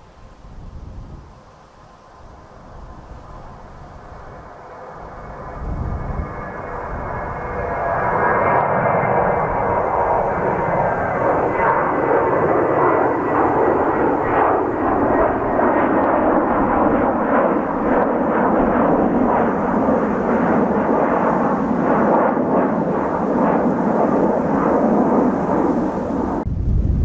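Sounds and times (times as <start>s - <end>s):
jet engines roaring: 2.2s - 27.0s.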